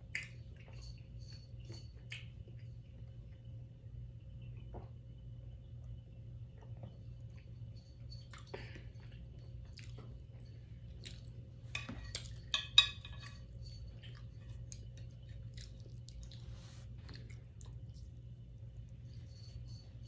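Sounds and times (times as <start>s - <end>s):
chewing: 8.2s - 11.5s, 13.4s - 18.9s.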